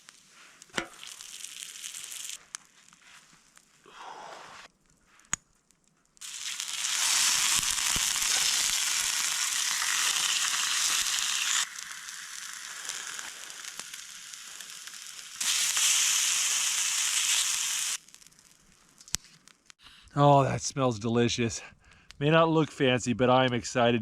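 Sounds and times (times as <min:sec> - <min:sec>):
meat sizzling: 0:00.0 - 0:03.0, 0:06.2 - 0:18.7.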